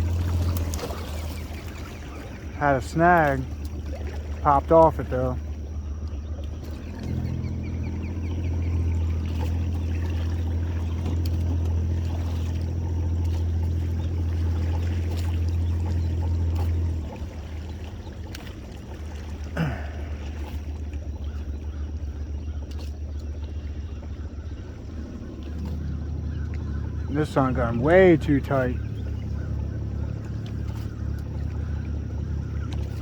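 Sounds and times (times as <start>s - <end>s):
boat motor humming: 0.0s - 33.0s
water sounds: 0.0s - 33.0s.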